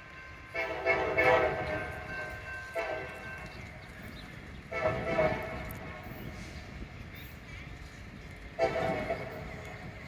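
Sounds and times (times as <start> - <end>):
locomotive air horn blasts: 0.5 - 3.3, 4.7 - 6.3, 8.6 - 9.7.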